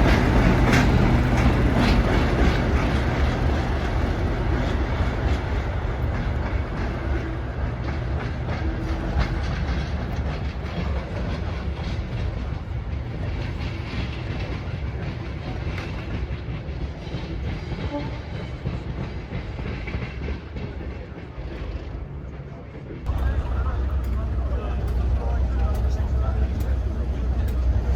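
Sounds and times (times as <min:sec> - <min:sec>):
train wheels rumbling on rails: 0:00.0 - 0:27.9.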